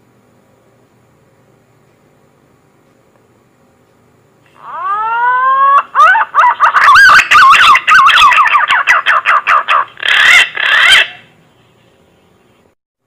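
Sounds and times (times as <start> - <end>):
bird call whistling: 4.6 - 11.3.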